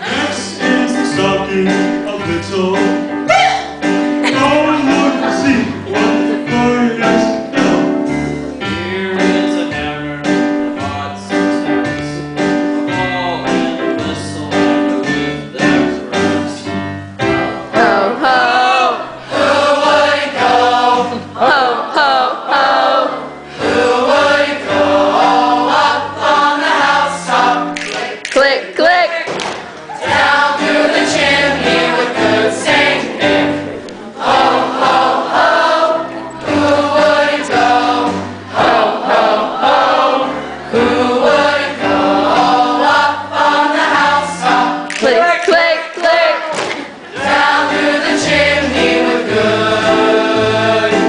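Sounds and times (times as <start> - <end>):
choir singing: 0.0 - 3.0, 4.2 - 9.9, 17.7 - 28.2, 29.8 - 51.0
piano accompaniment: 0.0 - 51.0.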